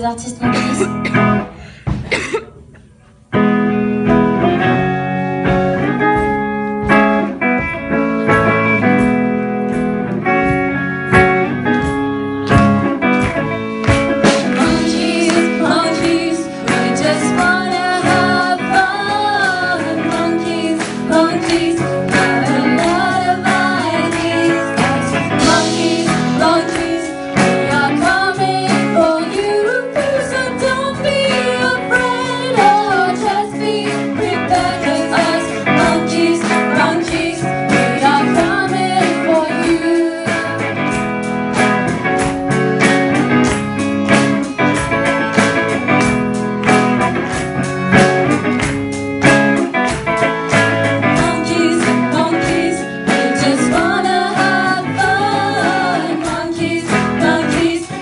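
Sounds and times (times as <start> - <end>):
pop song with steady beat: 13.9 - 46.3, 48.6 - 58.0
person singing: 51.0 - 58.0.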